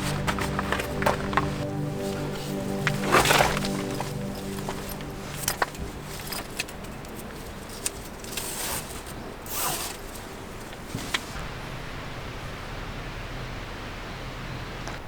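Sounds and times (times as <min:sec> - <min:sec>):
gear clicks and knocks: 0:00.0 - 0:11.3.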